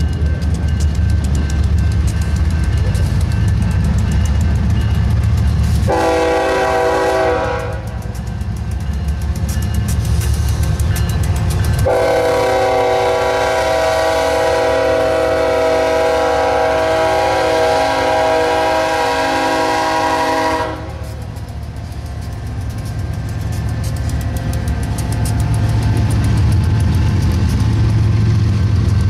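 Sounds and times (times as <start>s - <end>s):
wheels clattering over rail joints: 0.0s - 6.0s, 7.6s - 13.2s, 21.0s - 29.0s
diesel locomotive rumble: 0.0s - 29.0s
train air horn blast: 5.9s - 8.0s, 11.8s - 21.3s.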